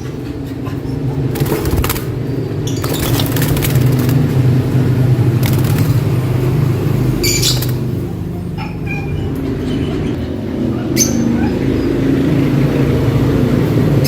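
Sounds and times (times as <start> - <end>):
birds fluttering in a cage: 0.0 - 14.0
high bird chirps: 7.0 - 8.0.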